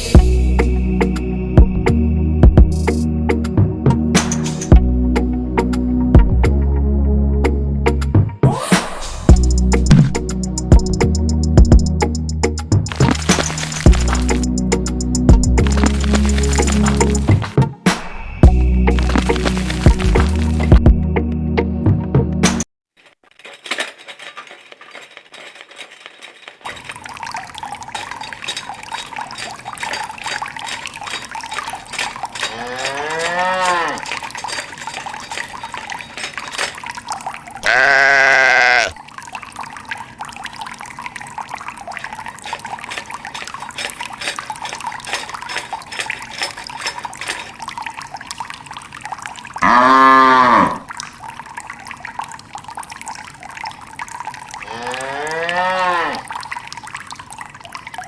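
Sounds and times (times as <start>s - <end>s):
running water: 9.3s - 17.7s, 18.8s - 20.8s, 23.0s - 58.0s
animal bleating: 37.6s - 39.0s, 54.7s - 56.3s
cattle mooing: 37.6s - 39.0s, 49.6s - 50.9s, 54.7s - 56.3s.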